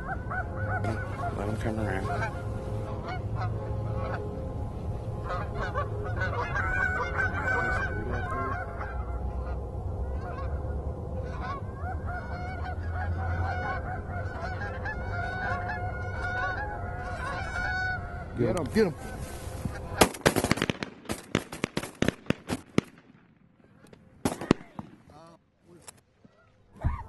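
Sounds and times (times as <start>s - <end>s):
geese honking: 0.0s - 20.6s.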